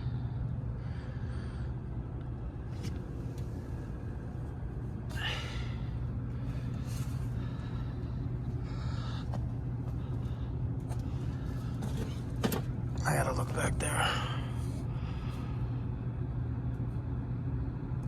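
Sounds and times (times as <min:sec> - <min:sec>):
heating unit humming: 0:00.0 - 0:18.0.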